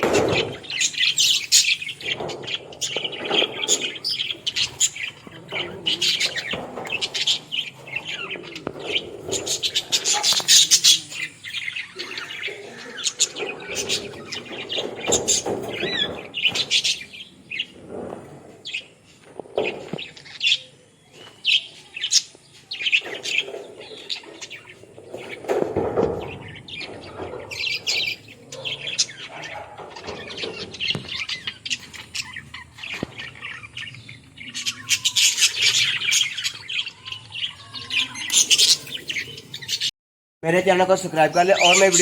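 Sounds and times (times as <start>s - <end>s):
budgerigars chirping and chattering: 0.0s - 42.0s.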